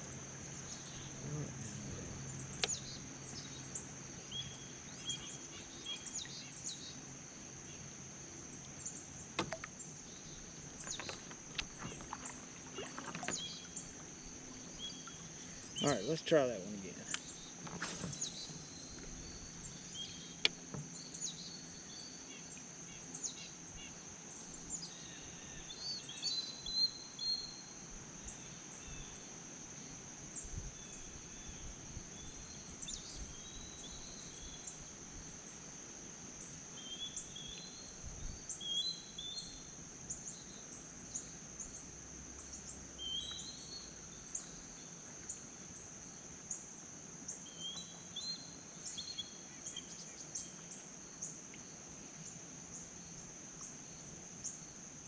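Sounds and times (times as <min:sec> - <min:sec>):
high insect drone: 0:00.0 - 0:55.0
short bird chirps: 0:17.2 - 0:20.4.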